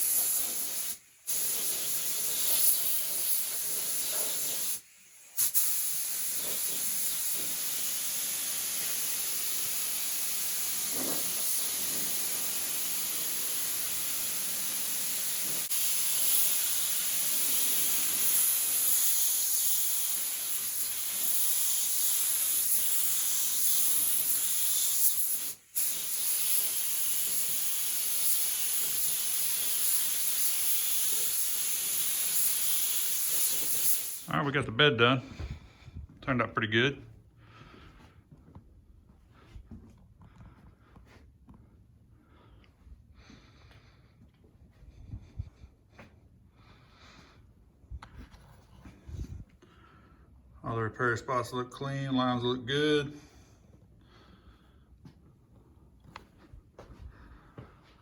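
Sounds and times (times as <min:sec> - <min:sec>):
spray gun hissing: 0:00.0 - 0:34.4.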